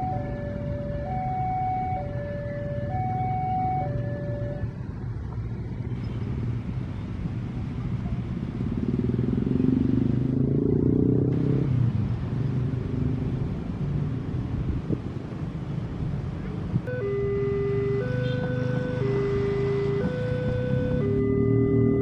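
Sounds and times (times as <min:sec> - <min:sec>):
two-tone warning alarm: 0:00.0 - 0:04.7, 0:16.9 - 0:22.0
low vehicle rumble: 0:00.0 - 0:22.0.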